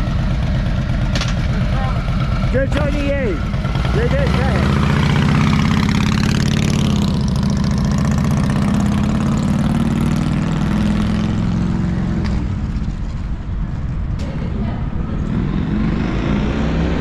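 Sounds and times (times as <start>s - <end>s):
vehicle engine idling: 0.0s - 5.9s.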